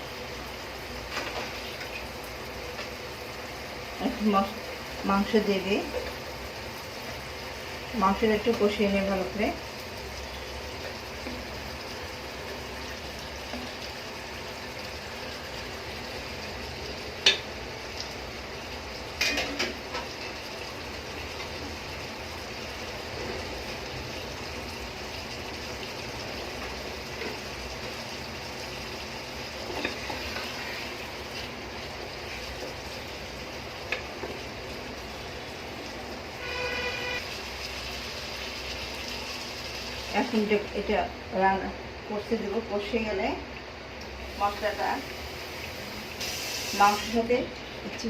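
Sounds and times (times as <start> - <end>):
chicken sizzling in a pot: 0.0 - 48.0.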